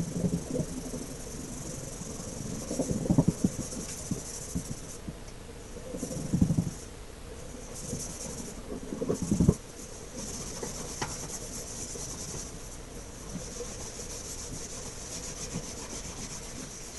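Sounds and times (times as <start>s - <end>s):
rubbing on wood: 7.5s - 16.9s.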